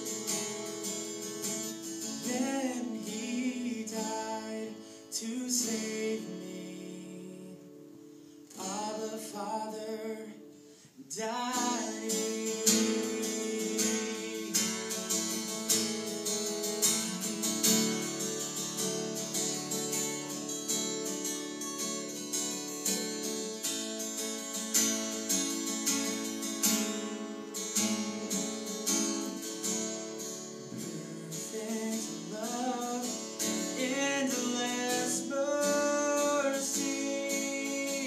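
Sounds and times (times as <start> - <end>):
acoustic guitar strumming chords: 0.0 - 38.0
person singing: 1.9 - 7.9, 8.5 - 15.7, 30.4 - 38.0.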